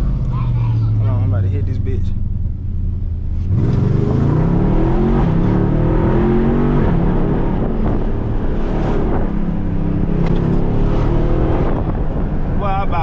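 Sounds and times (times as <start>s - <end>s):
car engine accelerating hard: 3.3s - 13.0s.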